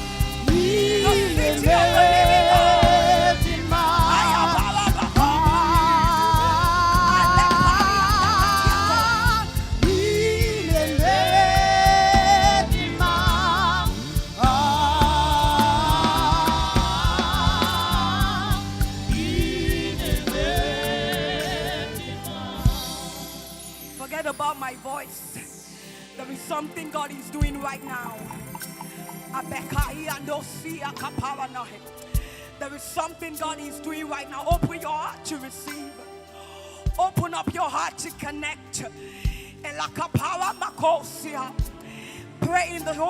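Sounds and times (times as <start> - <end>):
band playing steady beat: 0.0 - 24.0
person singing sustained notes: 7.8 - 24.3.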